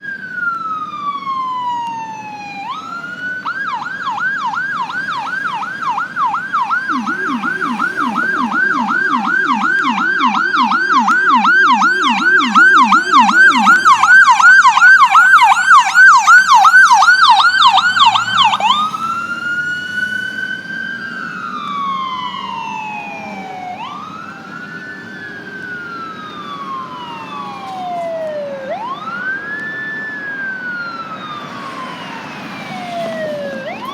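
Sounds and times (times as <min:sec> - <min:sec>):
deep low siren yelp: 0:00.0 - 0:33.9
emergency sirens wailing and yelping: 0:00.0 - 0:33.9.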